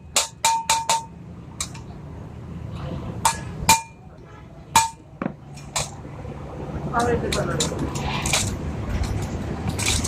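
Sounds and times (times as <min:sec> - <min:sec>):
hammer striking metal: 0:00.0 - 0:01.8, 0:03.2 - 0:04.1, 0:04.7 - 0:05.9.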